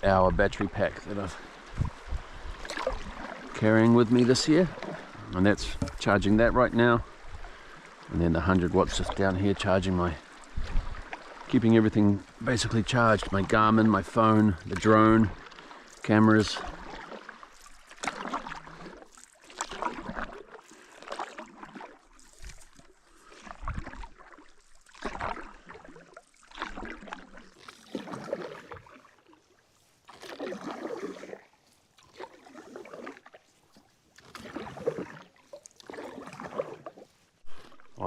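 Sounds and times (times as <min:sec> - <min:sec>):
paddle strokes in water: 0:00.0 - 0:38.0.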